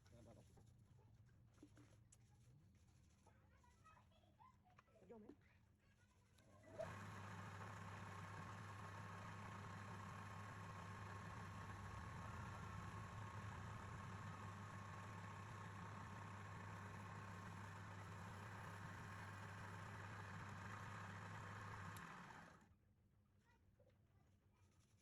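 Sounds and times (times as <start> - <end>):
lathe motor running: 6.8 - 22.6.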